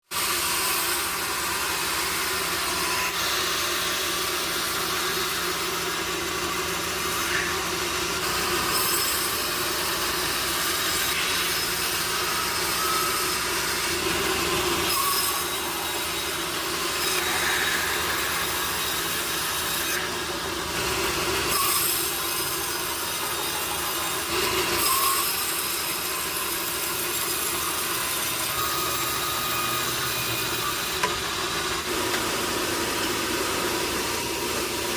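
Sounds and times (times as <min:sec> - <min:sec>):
saw cutting through wood: 0:00.0 - 0:34.9
machine hum: 0:01.2 - 0:21.5.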